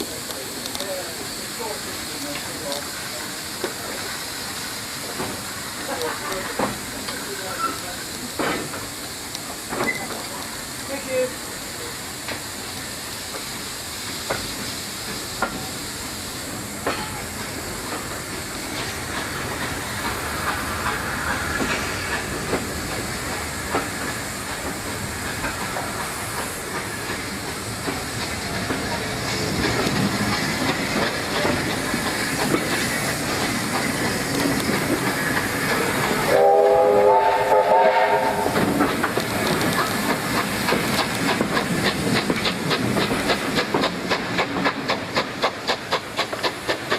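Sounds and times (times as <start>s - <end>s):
steam locomotive hissing: 0.0s - 46.9s
short steam whistle: 36.3s - 38.6s.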